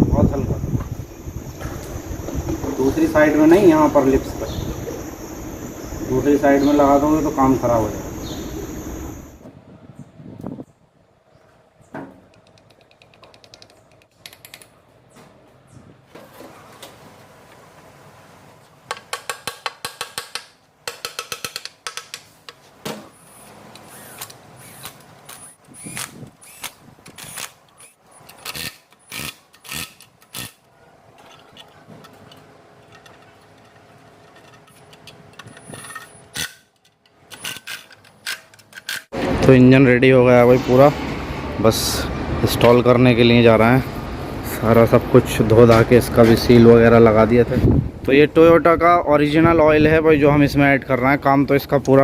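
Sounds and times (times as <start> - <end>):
hand tools clicking on metal: 18.9 - 22.6, 23.7 - 39.2.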